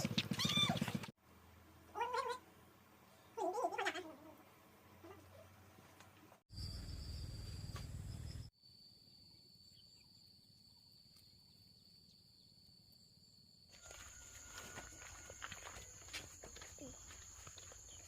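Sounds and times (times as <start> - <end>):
insects chirring: 6.5 - 18.0.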